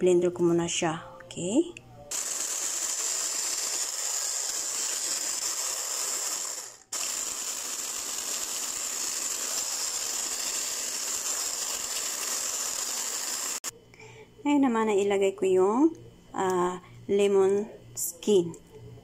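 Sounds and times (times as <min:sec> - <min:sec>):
hand blender whisking batter: 0:02.1 - 0:13.7.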